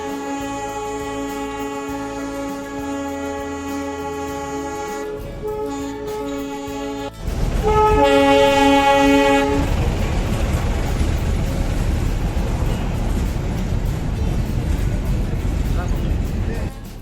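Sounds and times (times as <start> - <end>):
train horn: 0.0 - 10.4
background music: 0.0 - 17.0
train rumbling: 0.0 - 17.0.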